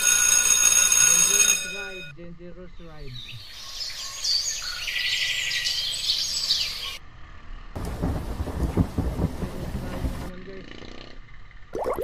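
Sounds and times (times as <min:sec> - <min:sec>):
flock of birds chirping: 0:02.4 - 0:10.3
road and wind rumble: 0:05.4 - 0:11.8.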